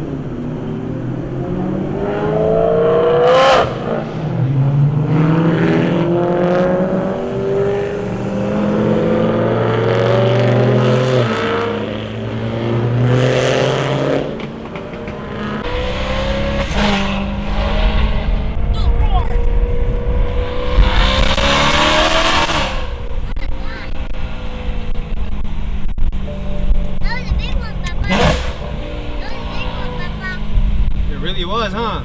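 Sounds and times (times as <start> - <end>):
car engines revving hard: 0.0 - 32.0
sharp exhaust cracks: 20.4 - 32.0.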